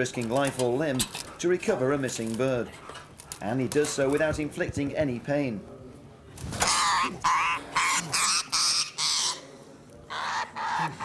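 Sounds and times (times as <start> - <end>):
bird squawking harsh calls: 6.6 - 9.4, 10.1 - 11.0.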